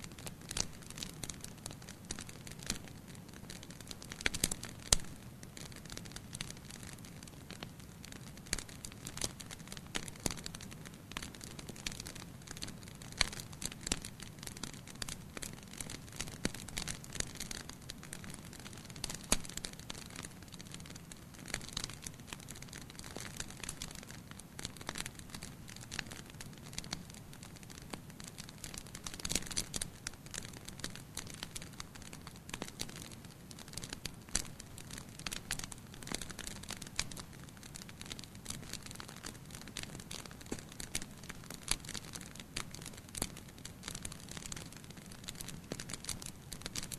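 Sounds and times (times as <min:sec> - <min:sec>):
wood fire crackling and popping: 0:00.0 - 0:46.9.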